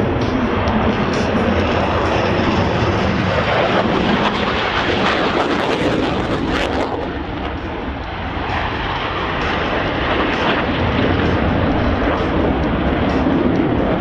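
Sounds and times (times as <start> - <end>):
fighter jet engines roaring: 0.0 - 14.0.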